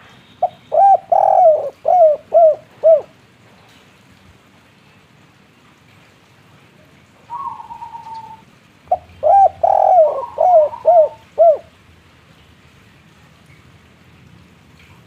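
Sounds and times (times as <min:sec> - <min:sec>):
dove cooing: 0:00.4 - 0:03.2, 0:07.3 - 0:11.7.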